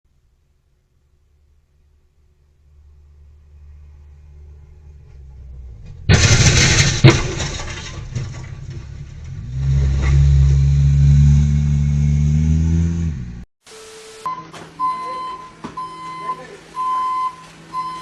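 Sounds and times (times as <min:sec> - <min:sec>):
vehicle engine hum: 0:00.1 - 0:13.5
sharp bang: 0:05.7 - 0:08.9.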